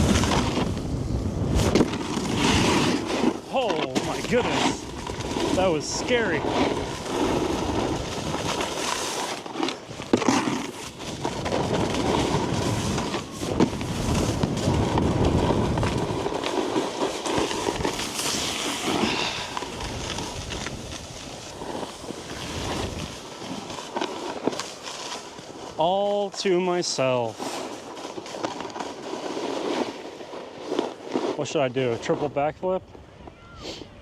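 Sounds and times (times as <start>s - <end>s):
wind buffeting microphone: 0.0s - 2.9s, 11.1s - 16.3s
snowboard scraping on snow: 0.0s - 33.0s.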